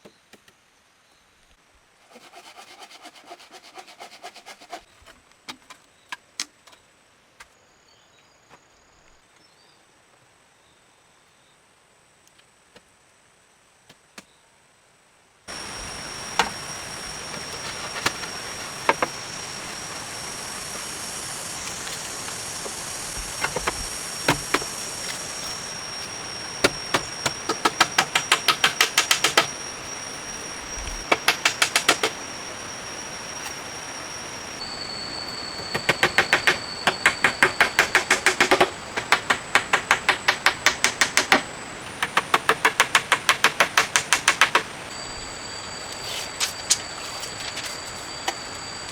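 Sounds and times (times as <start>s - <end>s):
insects high whine: 15.5s - 48.9s
rapid even knocks: 15.6s - 29.6s, 35.6s - 44.8s.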